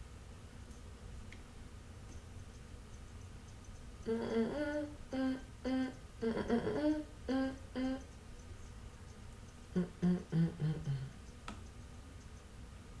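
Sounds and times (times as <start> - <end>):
woman humming a tune: 4.0 - 8.2, 9.7 - 11.2.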